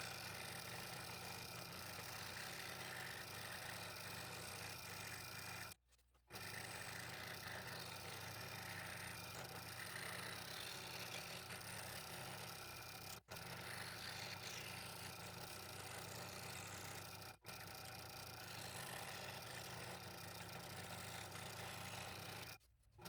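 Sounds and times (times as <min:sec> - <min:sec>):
power tool motor running: 0:06.4 - 0:17.8.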